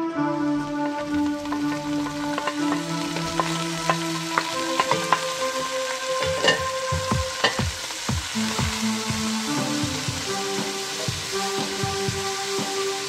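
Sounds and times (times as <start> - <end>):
background music: 0.0 - 13.0
fish frying in hot oil: 0.6 - 13.0
utensil clicking in pan: 1.0 - 6.8, 7.4 - 7.7.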